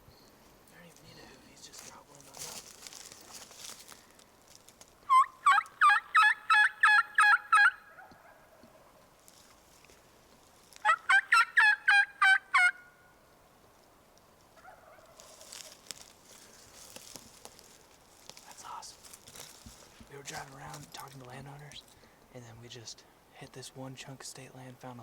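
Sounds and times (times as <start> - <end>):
turkey yelping: 5.0 - 9.1, 10.8 - 13.0, 14.6 - 15.8.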